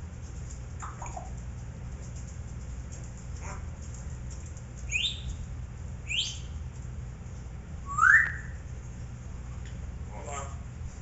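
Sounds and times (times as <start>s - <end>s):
steady low hum: 0.0s - 11.0s
parrot whistling: 4.9s - 5.3s, 6.1s - 6.5s, 7.8s - 8.6s.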